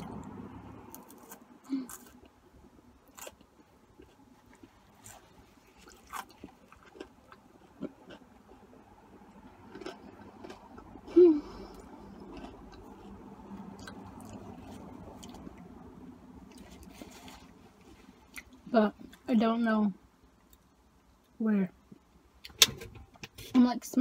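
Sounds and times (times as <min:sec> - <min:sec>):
person chewing fries: 0:00.0 - 0:15.8, 0:16.4 - 0:19.2.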